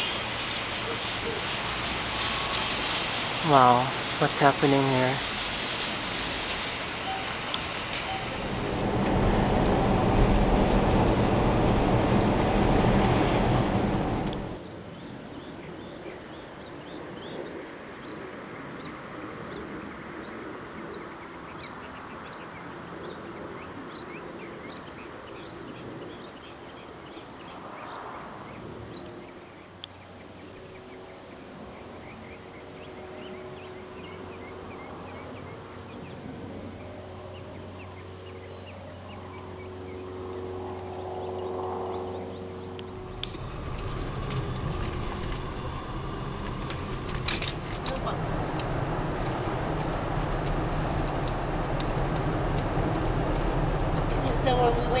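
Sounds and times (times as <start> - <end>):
steady low hum: 0.0 - 14.7, 32.9 - 55.0.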